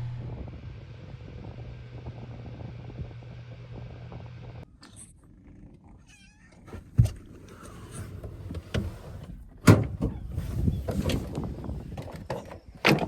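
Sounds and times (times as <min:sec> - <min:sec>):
low hum: 0:00.0 - 0:04.7
cat meowing: 0:06.0 - 0:06.7.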